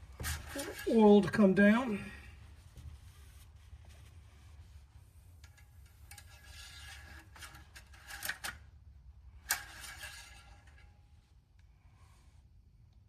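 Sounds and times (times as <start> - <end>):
dipstick scraping and rubbing: 2.7 - 8.4.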